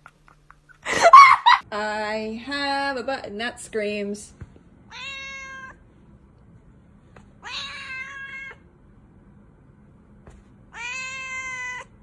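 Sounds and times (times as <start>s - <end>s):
cat meowing: 4.9s - 5.8s, 7.4s - 8.6s, 10.7s - 12.0s.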